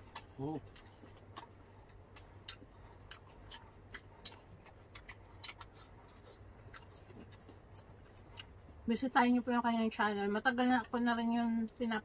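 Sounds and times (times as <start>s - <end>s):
wet chewing clicks: 0.0s - 8.9s
low steady hum: 0.0s - 12.0s.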